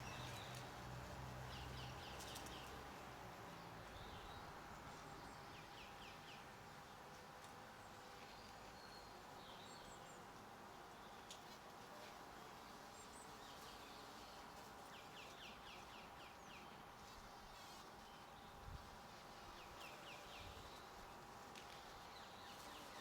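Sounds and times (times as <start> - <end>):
background hiss: 0.0 - 23.0
small birds chirping: 1.5 - 2.8.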